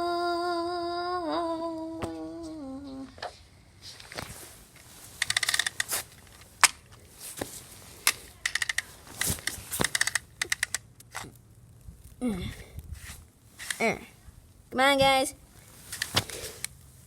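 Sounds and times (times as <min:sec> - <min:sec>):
toy train parts clicking: 0:05.2 - 0:06.8, 0:08.0 - 0:11.3, 0:13.6 - 0:13.8, 0:15.9 - 0:16.8.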